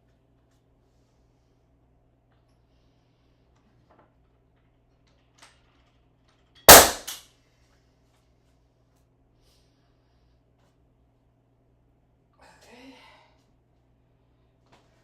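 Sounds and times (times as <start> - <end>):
nail gun firing bang: 6.7 - 7.2.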